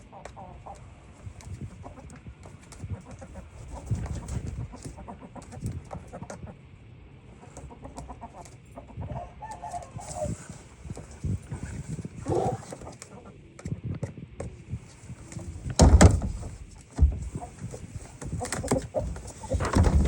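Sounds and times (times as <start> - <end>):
chickens clucking: 0.0 - 13.7, 15.3 - 20.0
chicken calls: 7.4 - 10.6, 18.3 - 20.0
low thumps: 15.6 - 17.4, 19.4 - 20.0.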